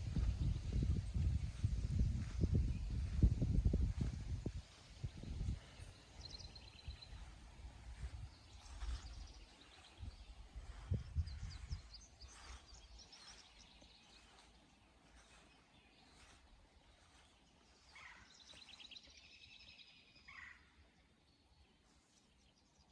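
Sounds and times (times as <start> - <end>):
low rumbling bumps: 0.0 - 5.6
songbirds singing: 0.0 - 22.9.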